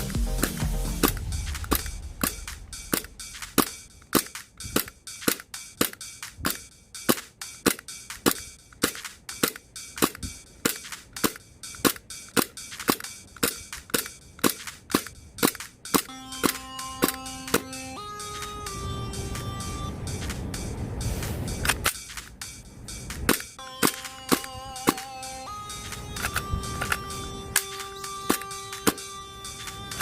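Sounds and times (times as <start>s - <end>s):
background music: 0.0s - 30.0s
airsoft pistol slide cycling: 1.0s - 17.6s, 21.6s - 22.3s, 25.8s - 30.0s.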